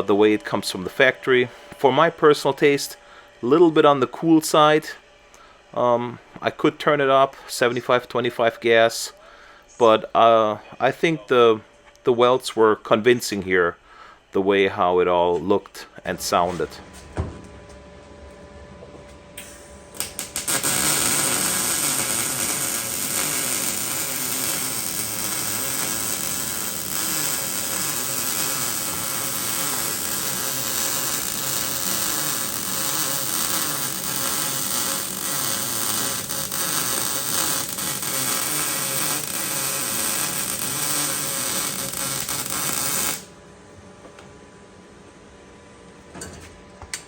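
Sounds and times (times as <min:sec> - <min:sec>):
welding arc buzzing: 0:19.4 - 0:43.4.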